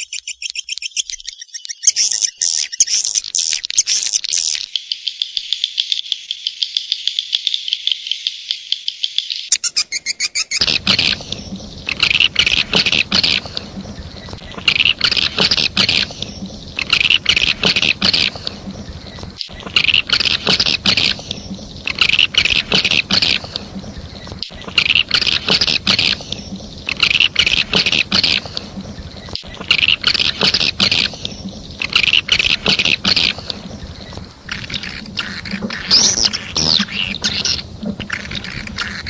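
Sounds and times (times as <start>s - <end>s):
swiftlet twittering chirps: 9.4s - 39.0s.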